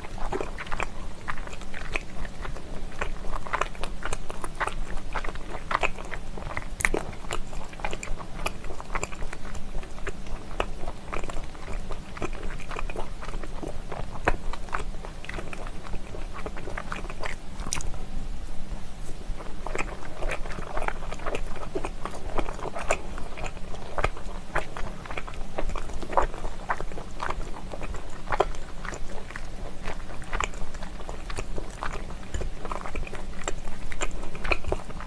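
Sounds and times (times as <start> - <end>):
chewing with mouth clicks: 0.0 - 18.0, 19.0 - 35.0.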